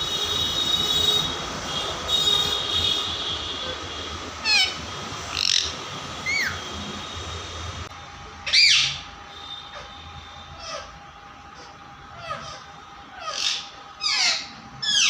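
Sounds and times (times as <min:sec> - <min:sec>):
parrot squawking: 0:04.4 - 0:06.6, 0:08.5 - 0:09.1, 0:09.7 - 0:11.0, 0:11.6 - 0:15.0.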